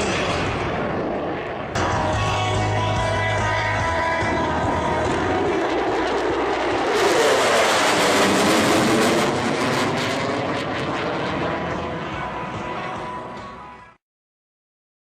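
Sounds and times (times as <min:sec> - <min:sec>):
military jet passing: 0:00.0 - 0:01.8, 0:04.2 - 0:13.4.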